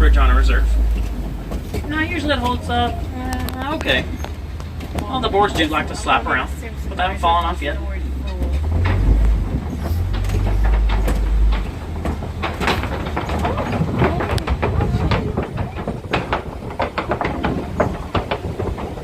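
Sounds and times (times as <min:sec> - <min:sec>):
low engine rumble: 0:00.0 - 0:19.0
wooden bridge boards clattering: 0:00.0 - 0:19.0.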